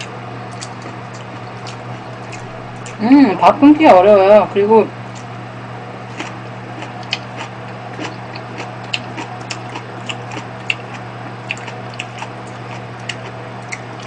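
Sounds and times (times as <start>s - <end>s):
close chewing with mouth clicks: 0.0s - 3.0s, 6.1s - 14.0s
steady low hum: 0.0s - 14.0s.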